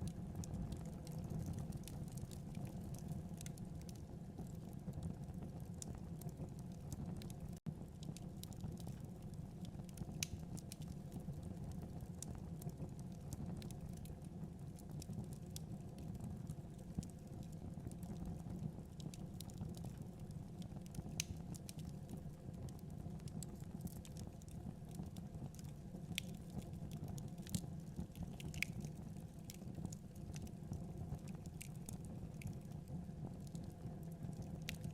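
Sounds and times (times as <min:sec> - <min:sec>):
fire flames rumbling: 0:00.0 - 0:34.9
logs crackling and popping: 0:00.3 - 0:14.2, 0:14.8 - 0:34.9.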